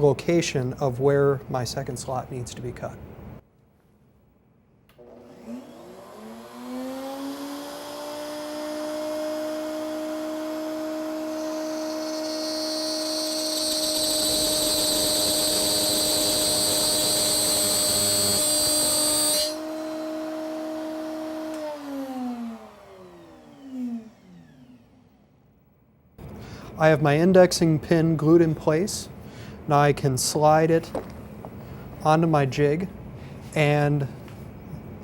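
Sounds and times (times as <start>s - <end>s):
router cutting wood: 5.0s - 25.1s
router spinning with high whine: 5.0s - 25.4s.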